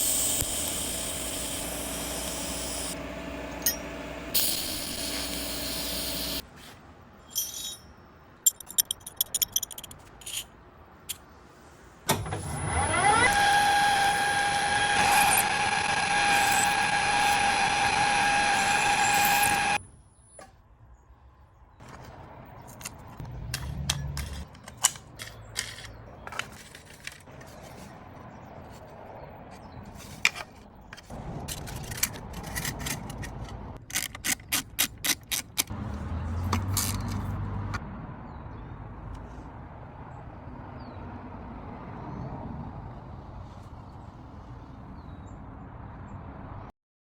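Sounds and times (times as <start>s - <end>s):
power tool whining: 0.0s - 6.4s, 12.2s - 19.8s
hand tools clicking on metal: 31.5s - 35.7s.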